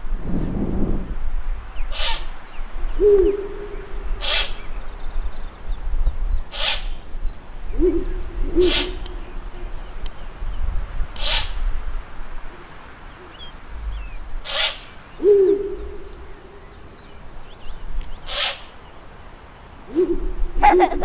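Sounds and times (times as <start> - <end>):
owl hooting: 7.7 - 9.6, 14.5 - 16.3, 19.9 - 21.0
harsh hoarse calls: 20.6 - 21.0.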